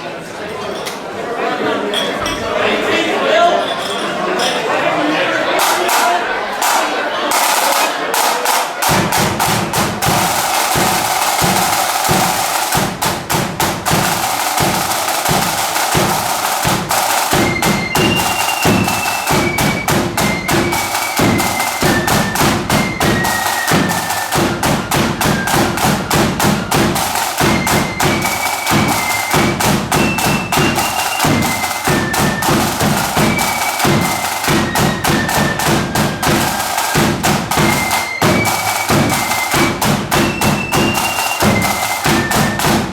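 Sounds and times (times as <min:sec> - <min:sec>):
snare and bass drums beating: 0:05.6 - 0:42.9
flutes playing shrill melody: 0:09.7 - 0:12.8, 0:13.9 - 0:42.9.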